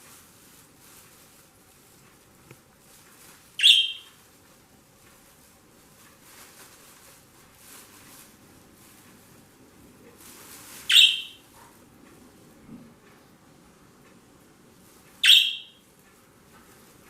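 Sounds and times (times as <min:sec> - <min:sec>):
faint rustling: 0:00.0 - 0:15.2, 0:15.8 - 0:17.0
parrot shrill call: 0:03.6 - 0:04.1, 0:10.9 - 0:11.4, 0:15.2 - 0:15.8.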